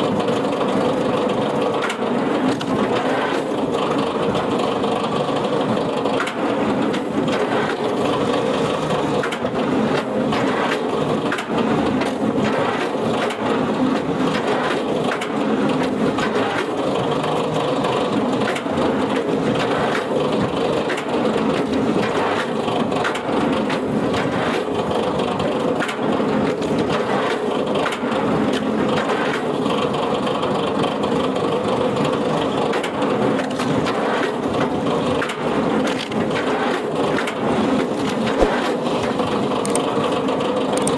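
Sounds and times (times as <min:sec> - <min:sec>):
wood cracking and crunching: 0:37.7 - 0:39.9.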